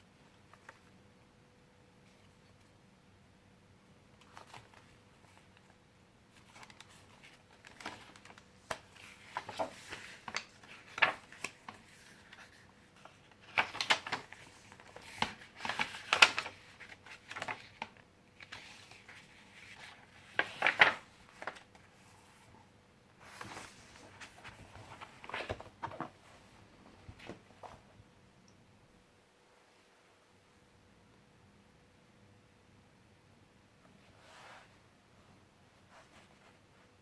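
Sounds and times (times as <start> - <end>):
paper pages rustling: 4.2 - 22.5, 23.2 - 27.8.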